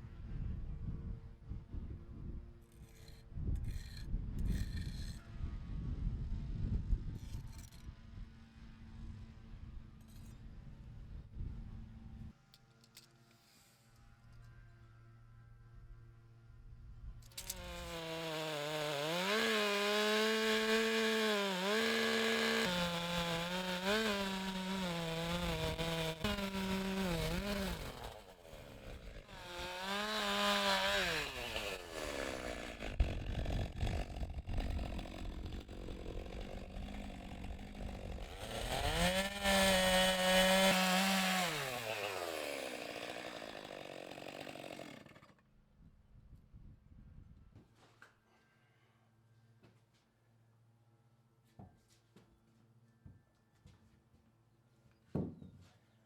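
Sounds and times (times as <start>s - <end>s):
chainsaw cutting a log: 17.3s - 45.4s.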